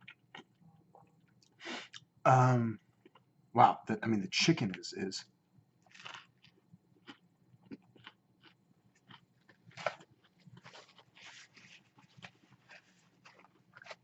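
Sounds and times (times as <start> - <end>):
person chewing crunchy food: 5.8 - 14.0.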